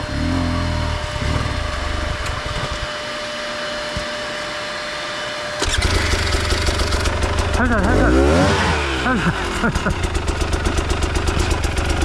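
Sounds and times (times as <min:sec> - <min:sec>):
dirt bike engine running: 0:00.0 - 0:04.2, 0:05.6 - 0:12.0.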